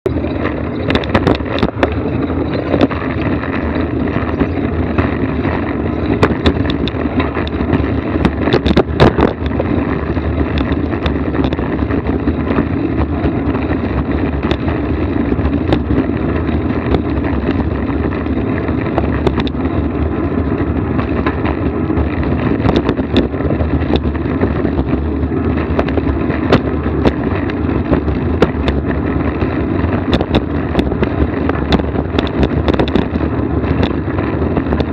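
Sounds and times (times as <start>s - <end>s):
moving vehicle rumble: 0.0s - 34.9s
knocks and rattles from bumps: 0.1s - 34.9s.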